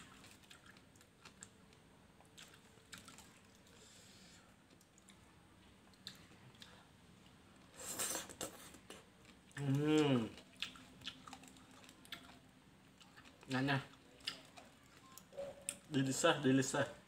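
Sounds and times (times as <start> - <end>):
person chewing and smacking: 0.0 - 3.8, 4.6 - 15.9
person humming: 9.6 - 10.3.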